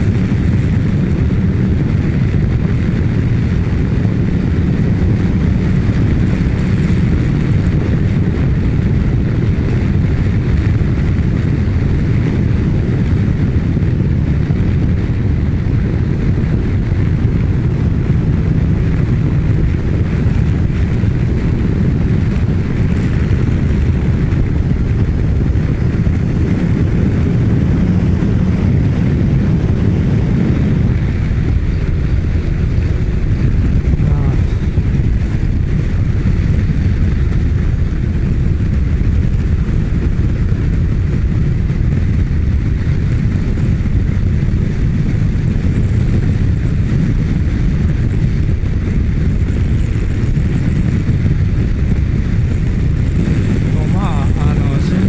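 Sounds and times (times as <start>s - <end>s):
motorcycle engine running: 0.0s - 55.0s
wind rush on microphone: 0.0s - 55.0s.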